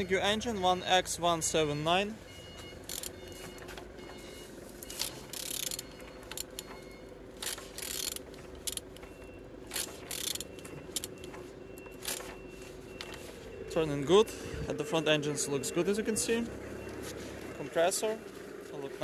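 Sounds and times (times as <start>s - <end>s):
engine turned over by wrench: 2.5s - 19.0s
wrench clicks: 2.9s - 3.2s, 4.9s - 6.7s, 7.4s - 9.0s, 9.7s - 11.3s.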